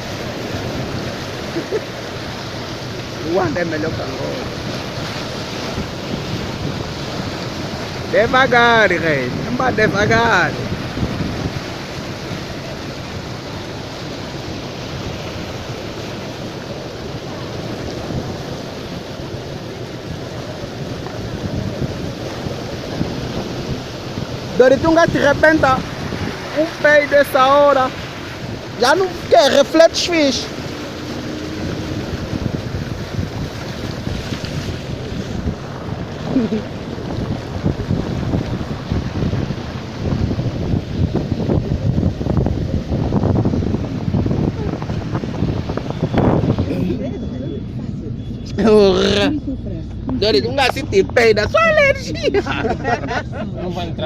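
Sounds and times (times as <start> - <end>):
heavy rain: 0.0 - 47.8, 50.0 - 53.3
running water: 0.0 - 54.0
wind buffeting microphone: 0.0 - 54.0.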